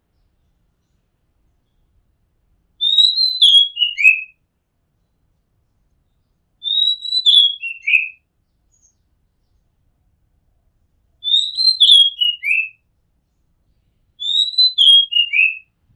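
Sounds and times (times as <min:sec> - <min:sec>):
bird singing whistled phrases: 0:02.8 - 0:04.4, 0:06.6 - 0:08.9, 0:11.2 - 0:12.8, 0:14.2 - 0:15.7.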